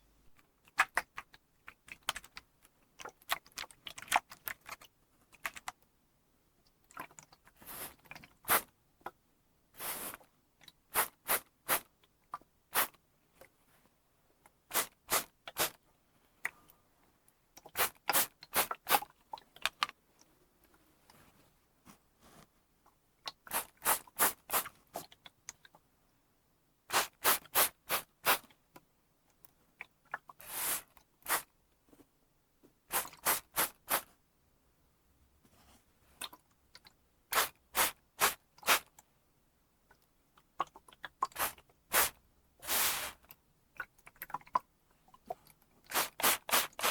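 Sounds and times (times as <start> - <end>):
spray bottle spraying: 30.5 - 31.4, 32.9 - 34.0, 37.4 - 38.8, 41.4 - 43.2, 45.9 - 46.9.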